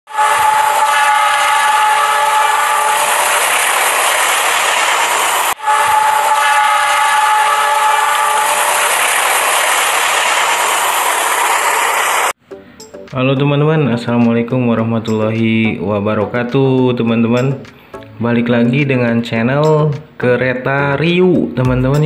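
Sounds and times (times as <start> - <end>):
train horn: 0.1 - 3.9, 5.5 - 9.2
train rumble and wheel clatter: 0.1 - 12.4.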